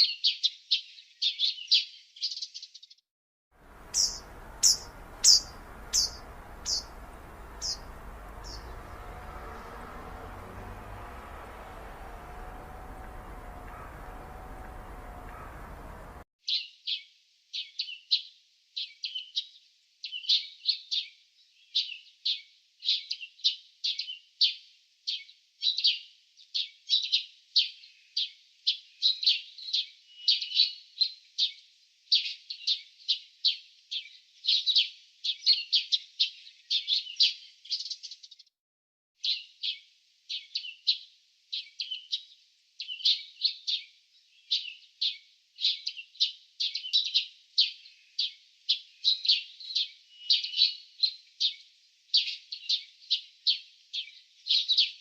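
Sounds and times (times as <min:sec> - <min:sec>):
small birds chirping: 0:03.6 - 0:16.7, 0:39.2 - 0:55.0.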